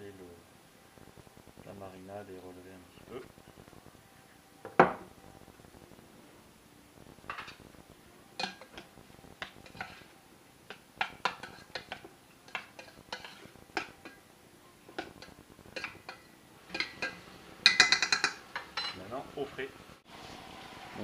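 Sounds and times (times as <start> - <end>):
utensils clinking against dishes: 8.4 - 10.1, 11.0 - 14.2, 14.9 - 19.1.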